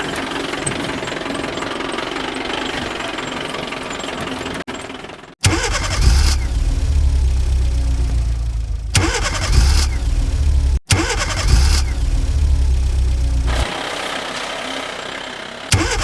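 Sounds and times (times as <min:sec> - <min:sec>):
engine starting: 0:00.0 - 0:07.1, 0:08.9 - 0:16.0
engine idling: 0:00.0 - 0:16.0.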